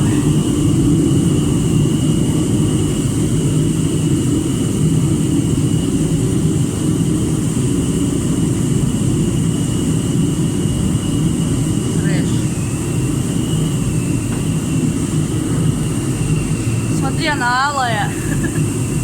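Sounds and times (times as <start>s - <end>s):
machine deep roar: 0.0s - 3.7s
high machine whine: 0.0s - 19.0s.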